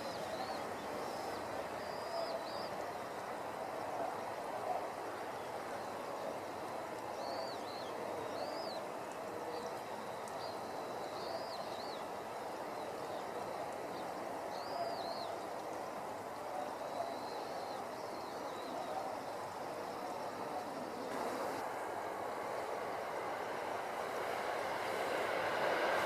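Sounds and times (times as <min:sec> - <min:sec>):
birds chirping: 0:00.0 - 0:15.7
outdoor background hiss: 0:00.0 - 0:26.0.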